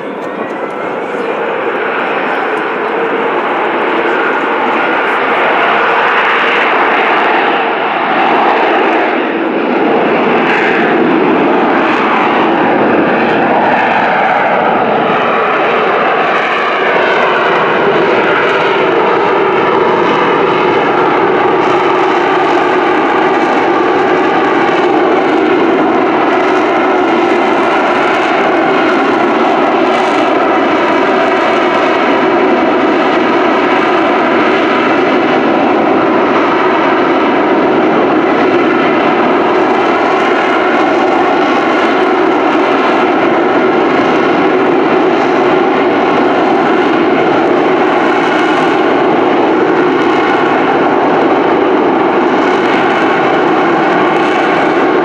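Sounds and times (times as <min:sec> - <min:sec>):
jet engine running at high power: 0:00.0 - 0:55.0.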